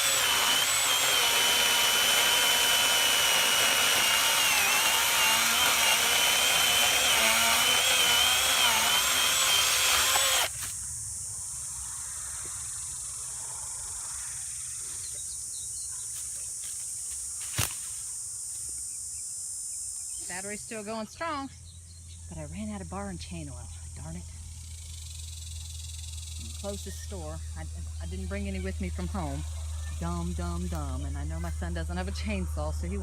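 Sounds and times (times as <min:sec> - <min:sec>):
electric chainsaw cutting wood: 0:00.0 - 0:10.5
insect drone: 0:00.0 - 0:33.0.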